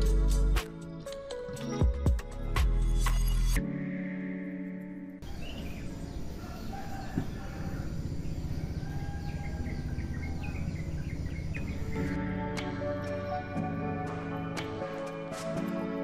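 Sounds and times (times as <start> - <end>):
birds chirping: 5.2 - 15.6.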